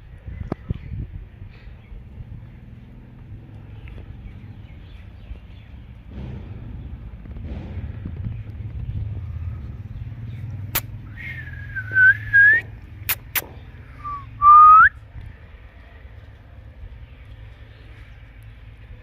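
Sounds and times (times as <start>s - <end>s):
steady low rumble: 0.0s - 19.0s
sharp clicks: 10.7s - 11.0s, 13.0s - 13.7s.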